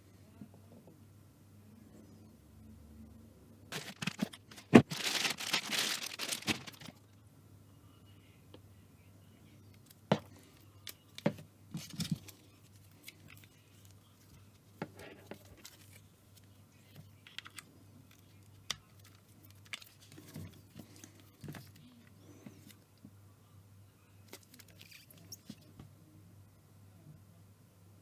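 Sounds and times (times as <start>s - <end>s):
cardboard and plastic rustling: 3.7s - 7.0s, 11.2s - 16.5s, 18.9s - 22.8s.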